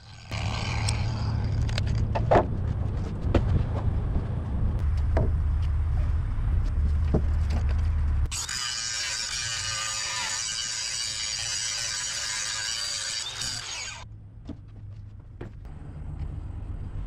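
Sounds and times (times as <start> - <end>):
engine running: 14.0 - 17.0.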